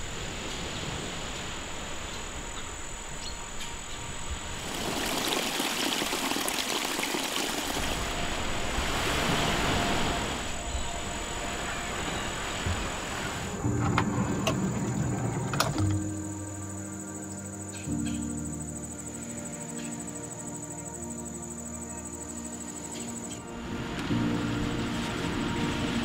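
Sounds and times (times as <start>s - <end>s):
water rushing hiss: 0.0s - 18.6s, 22.2s - 26.0s.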